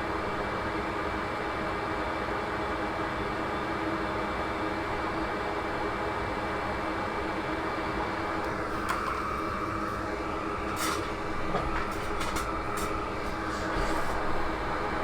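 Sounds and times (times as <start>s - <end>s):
fan whirring: 8.1s - 15.0s.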